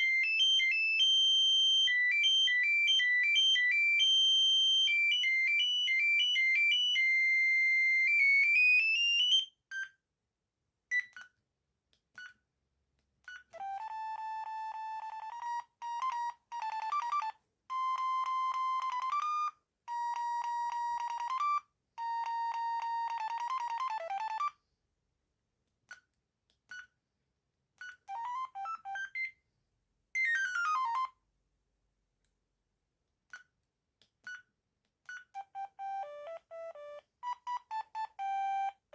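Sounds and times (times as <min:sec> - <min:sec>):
phone ringtone beeping tunes: 0:13.6 - 0:19.5, 0:22.6 - 0:24.6, 0:35.4 - 0:38.8
chirping phone tones: 0:22.6 - 0:24.6, 0:27.9 - 0:29.3, 0:35.4 - 0:38.9.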